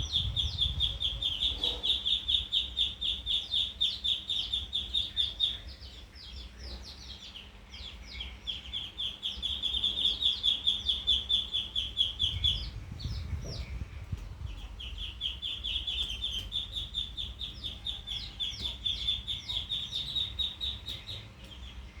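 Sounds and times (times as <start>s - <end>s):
low rumble: 0.0s - 1.6s
baby bird chick peeping: 0.0s - 22.0s.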